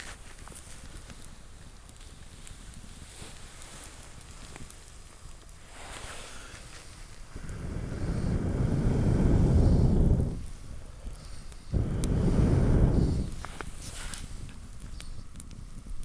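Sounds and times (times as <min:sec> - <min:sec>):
person blowing on embers: 0:05.6 - 0:15.6.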